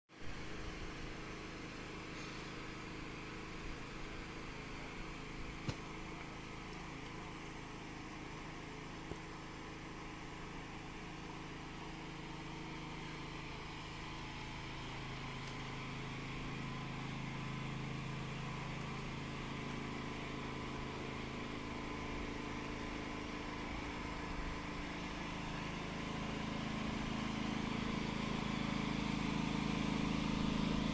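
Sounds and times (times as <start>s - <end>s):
motor humming: 14.8s - 30.9s.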